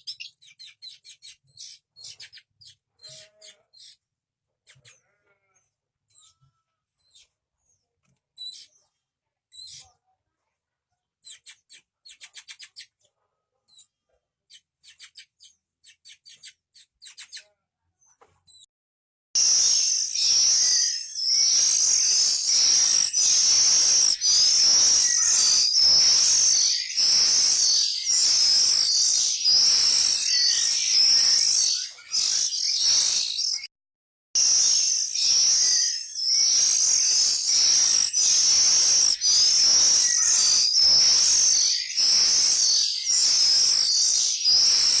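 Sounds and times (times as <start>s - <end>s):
bird chirping: 0.0s - 5.2s, 6.1s - 10.0s, 11.2s - 13.1s, 13.7s - 18.7s, 19.4s - 33.7s, 34.4s - 45.0s
high-pitched chirring: 19.4s - 33.7s, 34.4s - 45.0s.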